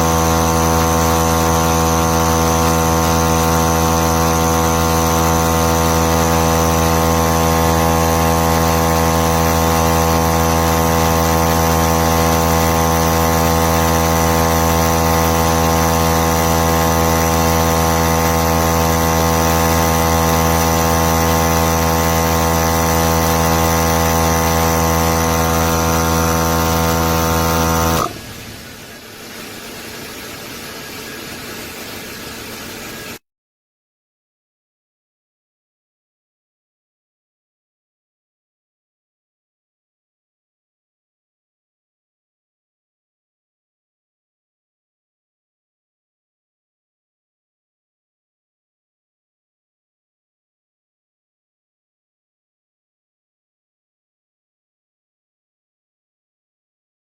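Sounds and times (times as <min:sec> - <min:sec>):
tire inflator compressor running: 0:00.0 - 0:30.2.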